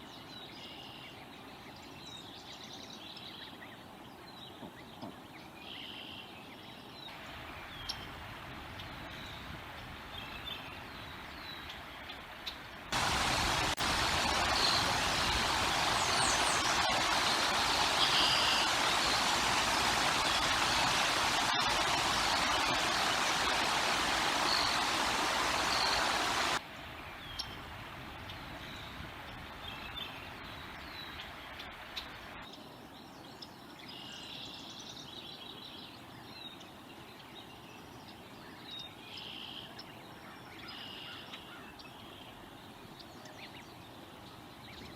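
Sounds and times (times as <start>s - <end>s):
wind rushing on microphone: 12.9s - 31.2s.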